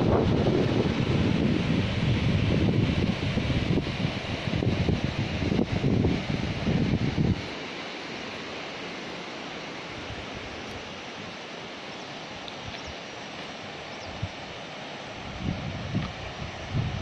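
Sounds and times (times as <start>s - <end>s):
wind buffeting microphone: 0.0s - 7.5s, 15.2s - 17.0s.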